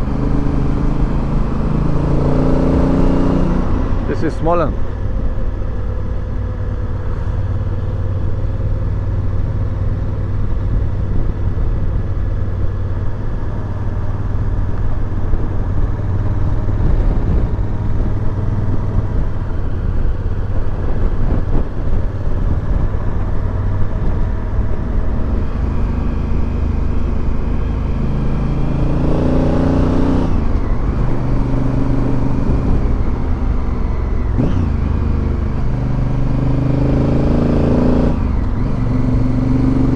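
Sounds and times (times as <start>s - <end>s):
motorcycle engine accelerating: 0.0s - 39.9s
road and wind noise: 0.0s - 39.9s.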